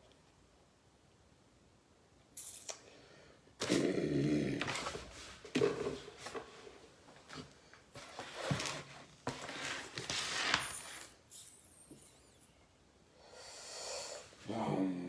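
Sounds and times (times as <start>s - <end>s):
food crinkling and rustling: 4.6s - 11.2s.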